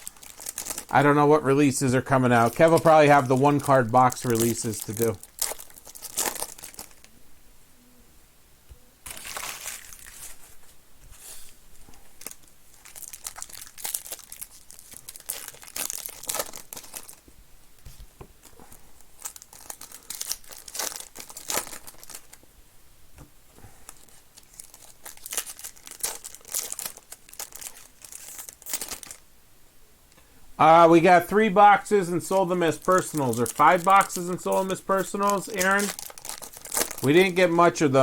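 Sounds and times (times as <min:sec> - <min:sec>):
wrappers tearing and crinkling: 0:00.0 - 0:01.2, 0:02.2 - 0:07.1, 0:09.1 - 0:10.6, 0:11.9 - 0:17.2, 0:18.4 - 0:22.4, 0:23.9 - 0:29.2, 0:32.2 - 0:38.0.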